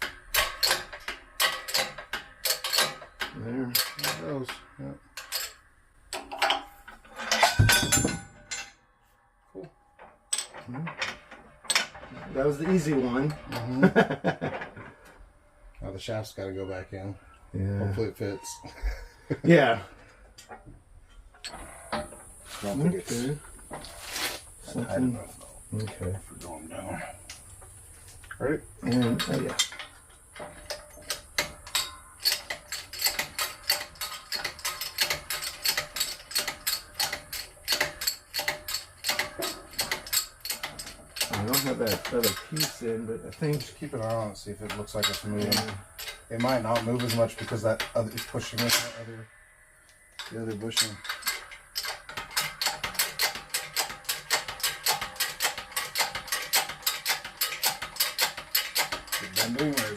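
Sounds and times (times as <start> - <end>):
press ratcheting clicks: 28.9 - 43.9, 44.6 - 48.9, 50.2 - 59.9.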